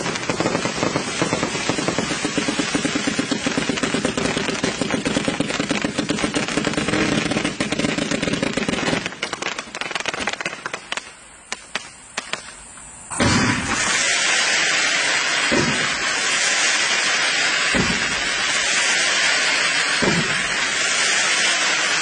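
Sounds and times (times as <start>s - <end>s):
firework launch thumps and pops: 0.0s - 14.4s, 15.4s - 16.3s, 17.7s - 18.9s, 20.0s - 21.0s
loud steady hiss: 0.0s - 22.0s.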